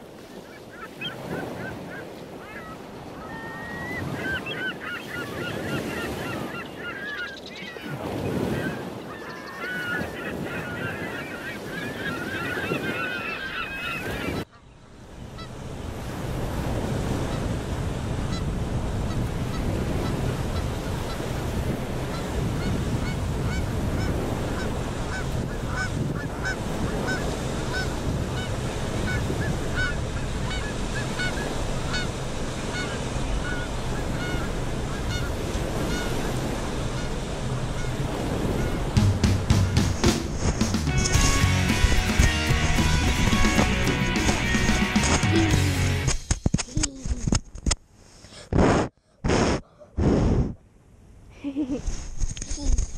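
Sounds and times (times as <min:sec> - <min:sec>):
small waves on shore: 0:00.0 - 0:46.3
wind: 0:00.0 - 0:52.9
geese honking: 0:00.3 - 0:14.8, 0:22.0 - 0:46.1.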